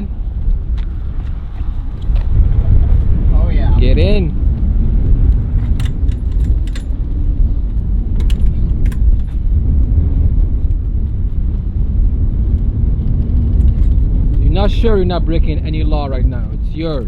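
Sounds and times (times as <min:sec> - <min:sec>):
car interior low rumble: 0:00.0 - 0:17.0
keys or seatbelt buckle clicking: 0:05.6 - 0:07.0, 0:08.2 - 0:09.4.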